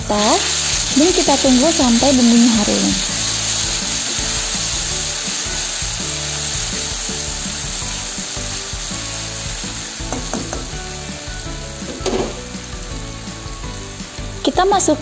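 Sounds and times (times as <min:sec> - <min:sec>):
background music: 0:00.0 - 0:15.0
spice paste sizzling in oil: 0:00.0 - 0:15.0
spatula stirring: 0:00.4 - 0:10.8
spatula tapping on pan: 0:10.0 - 0:10.8.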